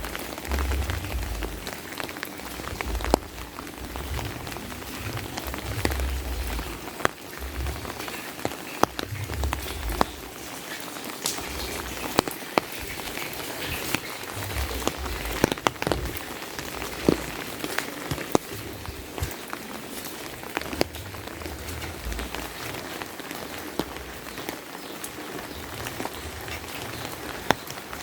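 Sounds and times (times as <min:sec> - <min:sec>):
low bumps: 0:00.0 - 0:08.1, 0:08.8 - 0:10.5, 0:11.4 - 0:19.5, 0:20.4 - 0:22.9
large drops tapping: 0:00.0 - 0:24.7
steady rain falling: 0:00.0 - 0:28.0.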